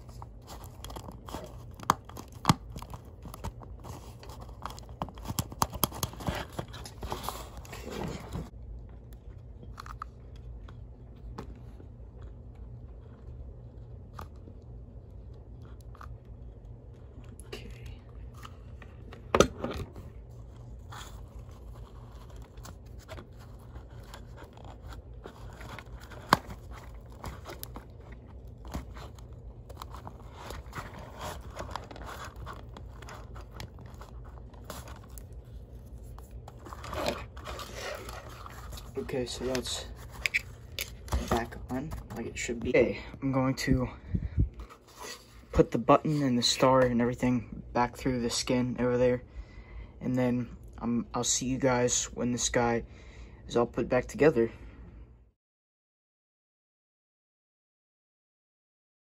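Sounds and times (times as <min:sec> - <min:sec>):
scraping and rustling of a toy: 0:00.0 - 0:19.2, 0:19.8 - 0:42.8, 0:44.6 - 0:47.1.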